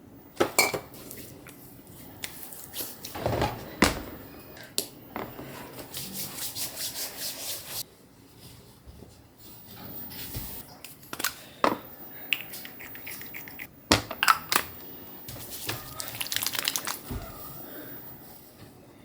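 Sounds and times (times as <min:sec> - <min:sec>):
crackles: 0:12.3 - 0:17.1
packaging crinkling: 0:15.5 - 0:17.1.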